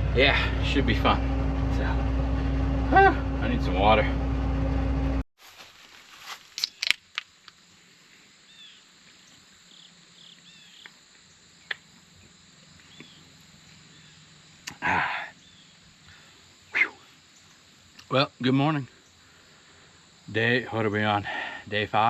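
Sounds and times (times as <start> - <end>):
rustling noise: 5.4 - 7.2
faint bird chirps: 8.4 - 17.7.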